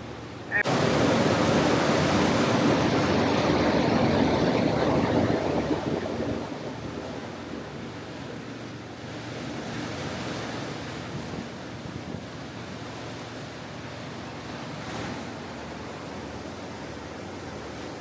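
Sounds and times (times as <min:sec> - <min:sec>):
rushing wind and water: 0:00.0 - 0:18.0.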